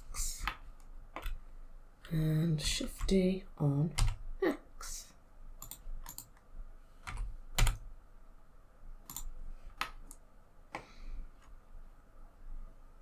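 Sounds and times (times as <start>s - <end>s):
keyboard keys clicking: 3.9s - 4.2s, 5.6s - 6.4s, 7.0s - 7.9s, 9.1s - 10.9s
mouse buttons clicking: 9.1s - 10.2s.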